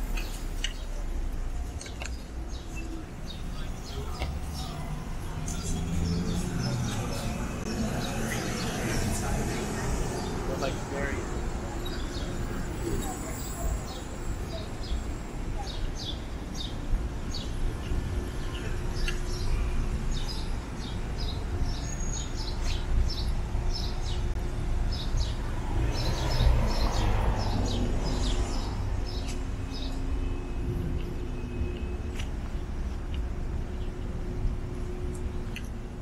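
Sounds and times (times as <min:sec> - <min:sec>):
city traffic rumble: 0:00.0 - 0:36.0
small birds chirping: 0:01.7 - 0:30.4.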